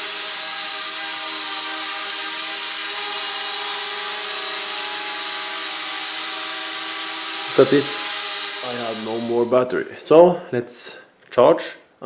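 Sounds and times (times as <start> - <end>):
quadcopter buzzing whine: 0.0 - 9.5.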